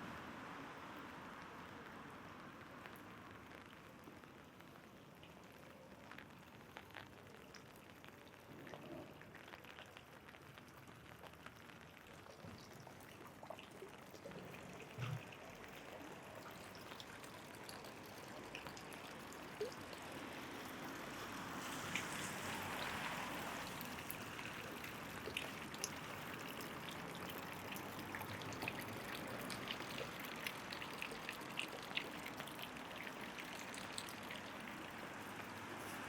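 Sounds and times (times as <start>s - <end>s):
light rain falling: 0.0s - 36.0s.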